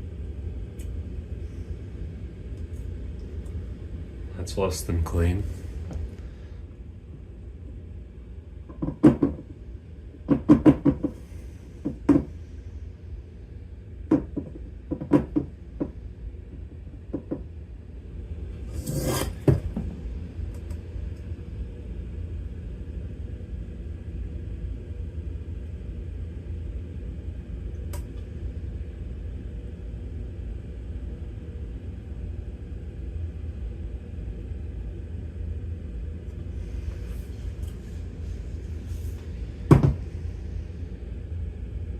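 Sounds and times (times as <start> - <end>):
steady low hum: 0.0 - 41.9
rustling scrape: 18.6 - 19.7.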